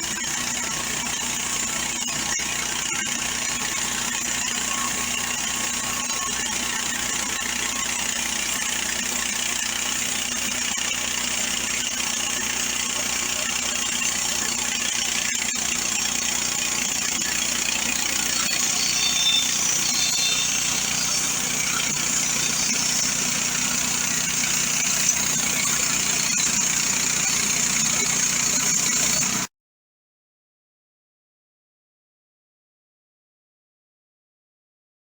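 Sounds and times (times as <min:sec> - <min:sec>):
gas engine running under load: 0:00.0 - 0:29.5
band blade sawing through wood: 0:16.2 - 0:29.4.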